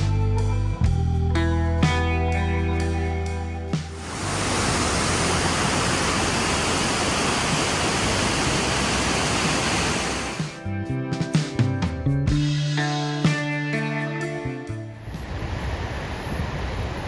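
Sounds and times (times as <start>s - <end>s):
background music: 0.0s - 4.5s, 9.6s - 15.0s
waterfall rushing: 4.0s - 10.6s.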